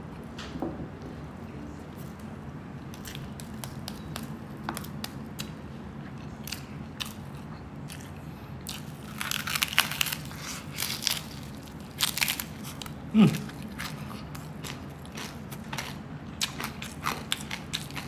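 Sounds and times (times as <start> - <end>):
crunching crispy pork skin: 7.9 - 18.0.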